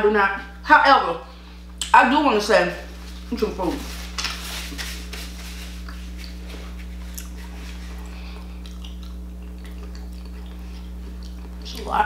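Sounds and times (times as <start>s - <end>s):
low electrical hum: 0.0s - 12.0s
chewing and mouth clicks: 5.8s - 6.4s, 7.0s - 11.9s.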